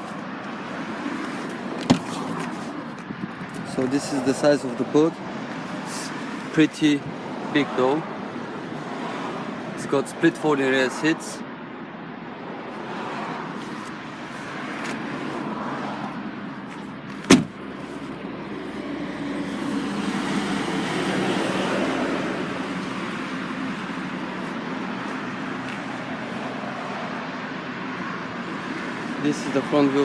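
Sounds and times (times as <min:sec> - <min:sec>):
road traffic noise: 0:00.0 - 0:30.0
car boot lid thump: 0:01.8 - 0:02.2, 0:17.2 - 0:17.6
vehicle passing: 0:12.4 - 0:30.0.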